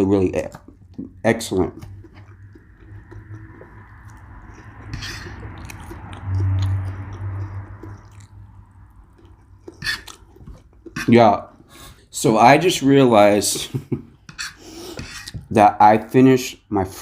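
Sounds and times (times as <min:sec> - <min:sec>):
person chewing food: 0:00.4 - 0:12.1
wet mouth clicks: 0:01.8 - 0:11.1.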